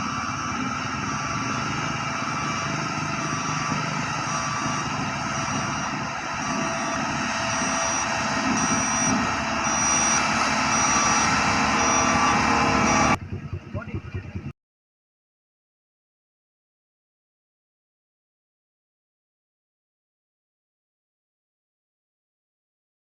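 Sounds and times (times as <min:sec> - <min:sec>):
high reversing alarm beeps: 0:00.0 - 0:13.2
vehicle engine running: 0:00.0 - 0:14.5.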